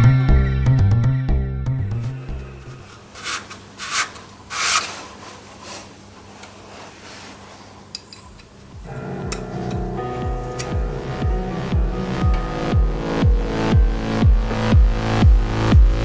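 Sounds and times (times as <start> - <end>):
music: 0.0 - 2.9, 8.6 - 16.0
abrasive rasping on metal: 2.0 - 5.9.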